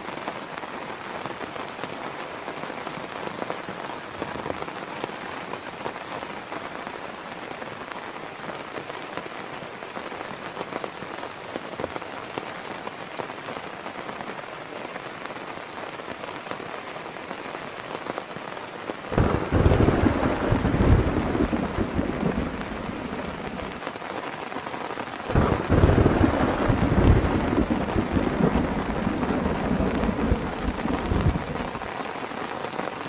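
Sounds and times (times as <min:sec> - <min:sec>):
heavy rain falling: 0:00.0 - 0:33.0
thunder crack and rumble: 0:19.2 - 0:23.8, 0:25.3 - 0:31.9.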